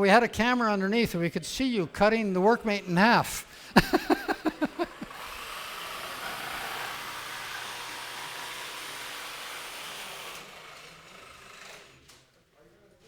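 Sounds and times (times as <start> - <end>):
power tool motor whirring: 4.5 - 12.3.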